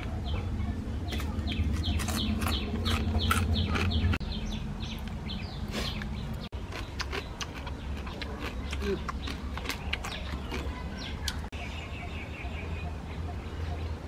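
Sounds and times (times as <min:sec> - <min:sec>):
bird chirping: 0:00.0 - 0:14.0
person chewing crab: 0:01.6 - 0:04.2, 0:05.7 - 0:10.7.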